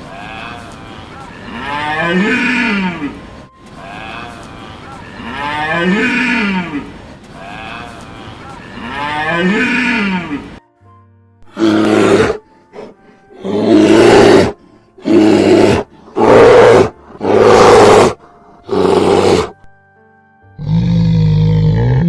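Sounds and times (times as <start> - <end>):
cow mooing: 1.4 - 3.2, 5.2 - 6.9, 8.7 - 10.5, 13.4 - 19.5
big cat roaring: 13.4 - 19.5.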